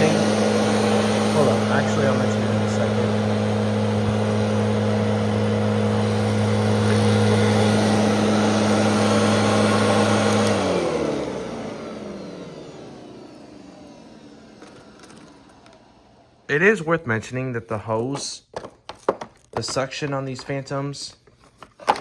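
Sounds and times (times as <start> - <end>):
vacuum cleaner humming: 0.0 - 16.8.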